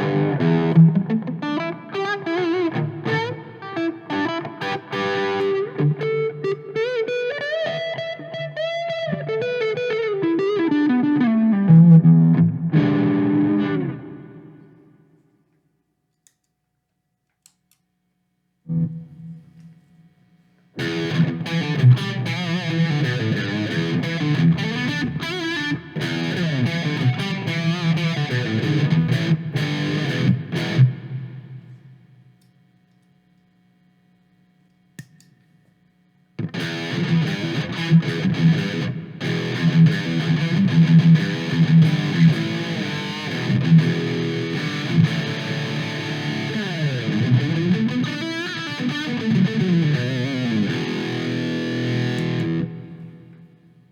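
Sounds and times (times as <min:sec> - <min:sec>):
distorted electric guitar: 0:00.0 - 0:15.1, 0:18.7 - 0:19.5, 0:20.8 - 0:32.0, 0:36.4 - 0:53.9
small click: 0:16.1 - 0:16.6, 0:17.3 - 0:17.9, 0:31.7 - 0:33.6, 0:34.6 - 0:35.5.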